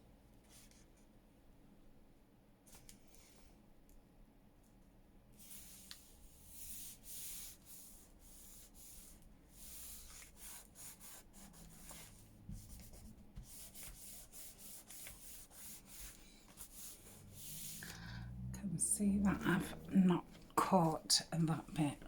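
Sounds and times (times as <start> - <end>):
ink applicator scratching on paper: 5.4 - 18.0.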